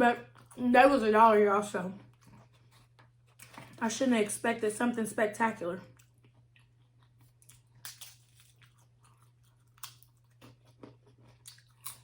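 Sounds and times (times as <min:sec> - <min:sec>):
person chewing food: 0:02.0 - 0:03.8, 0:05.9 - 0:12.0.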